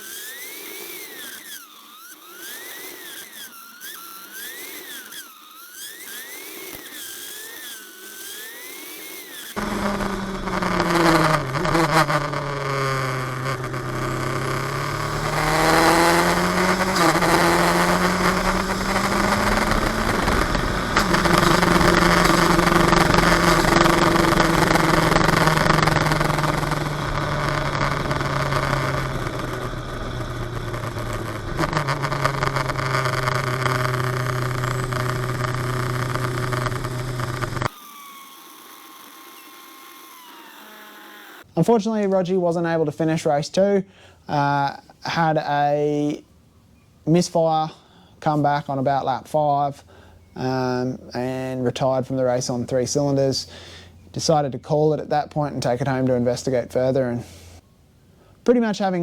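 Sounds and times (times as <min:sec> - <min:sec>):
faint wavering whine: 0:00.0 - 0:41.6
race car engine revving: 0:09.5 - 0:37.8.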